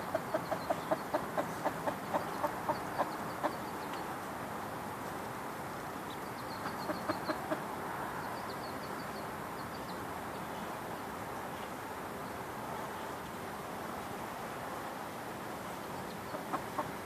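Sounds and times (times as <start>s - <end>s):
chickens clucking: 0.0s - 4.0s, 6.5s - 7.7s, 16.3s - 17.0s
outdoor background hiss: 0.0s - 17.0s.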